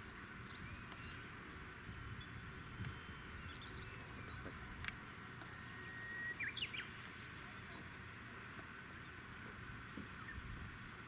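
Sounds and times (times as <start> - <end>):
faint steady whine: 0.0 - 11.0
bird chirps: 0.2 - 1.2, 2.2 - 4.5, 5.5 - 7.9.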